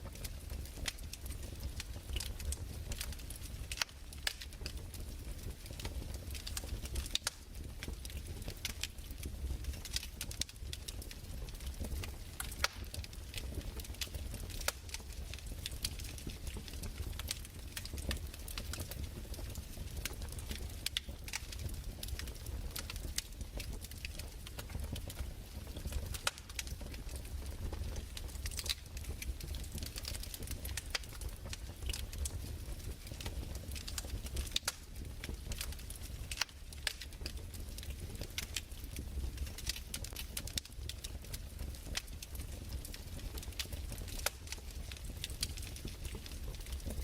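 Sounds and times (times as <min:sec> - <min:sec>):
fireplace pops and crackles: 0:00.0 - 0:47.0.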